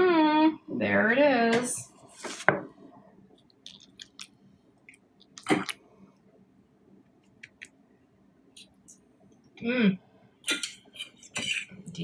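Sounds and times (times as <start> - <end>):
soft chewing: 3.3 - 6.1.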